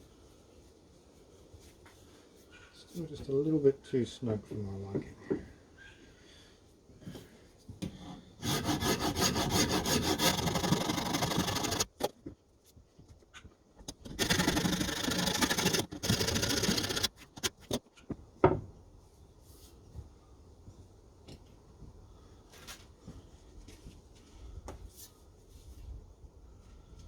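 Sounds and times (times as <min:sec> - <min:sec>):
rapid scraping of wood: 0:08.4 - 0:12.2, 0:13.8 - 0:17.9.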